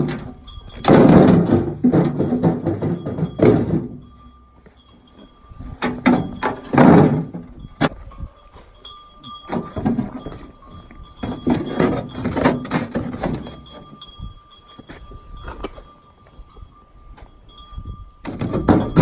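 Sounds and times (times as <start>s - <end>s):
knocks and thunks: 0.0s - 4.1s, 5.8s - 8.0s, 18.3s - 19.0s.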